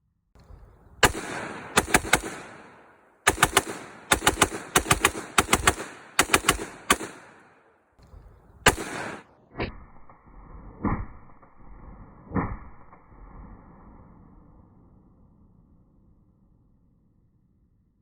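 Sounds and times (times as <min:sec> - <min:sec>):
gunshots: 0:01.0 - 0:09.5.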